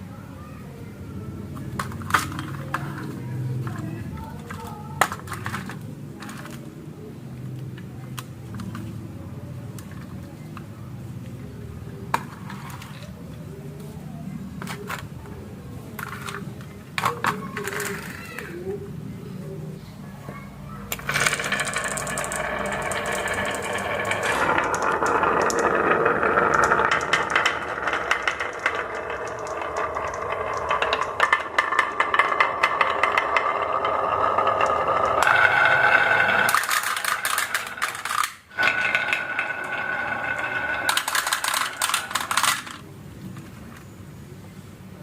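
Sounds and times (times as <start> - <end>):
marbles rolling down a track: 1.6 - 6.7, 12.1 - 13.2, 16.0 - 18.4, 20.9 - 42.8.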